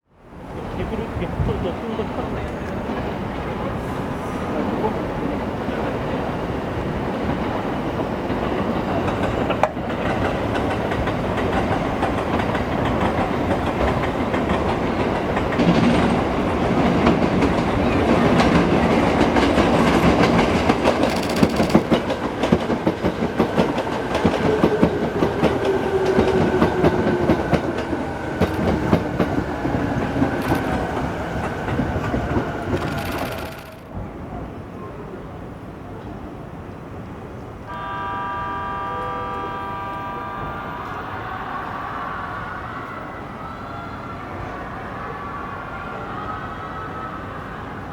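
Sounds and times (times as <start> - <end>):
train wheels clacking over rail joints: 7.2 - 34.0.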